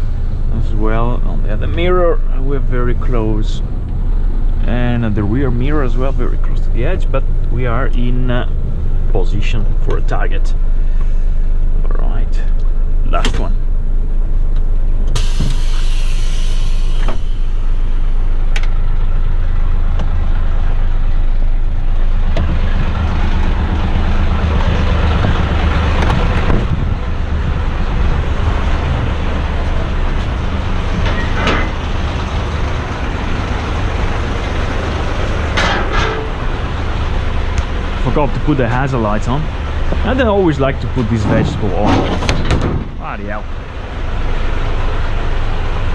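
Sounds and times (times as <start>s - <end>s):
diesel truck engine running: 0.0s - 45.9s
air hiss: 15.2s - 18.2s.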